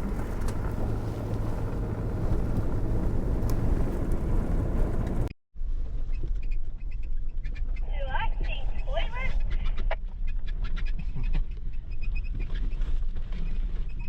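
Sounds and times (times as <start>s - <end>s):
car engine and road rumble: 0.0s - 5.3s
faint rattles: 0.0s - 5.3s.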